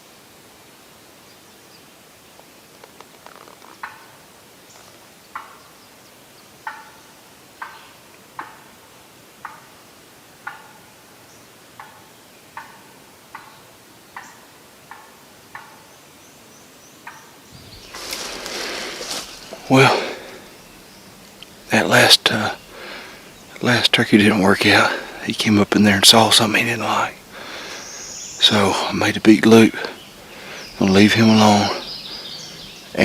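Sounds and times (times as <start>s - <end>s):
turkey alarm putts: 3.3s - 4.2s, 6.6s - 7.0s, 7.6s - 8.8s, 9.4s - 9.7s, 10.4s - 10.9s, 11.8s - 15.9s.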